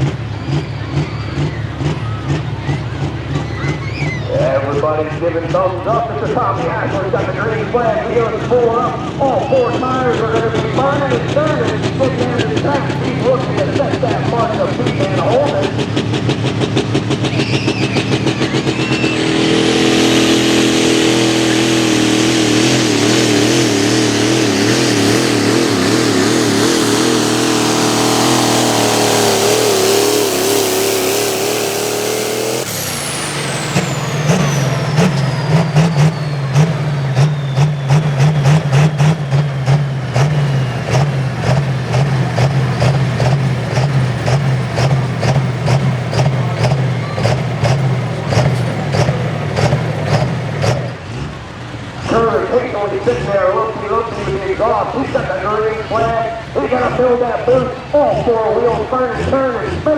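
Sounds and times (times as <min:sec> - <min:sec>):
diesel truck engine under load: 0:00.0 - 0:59.9
turbo whine spooling down: 0:17.2 - 0:39.5.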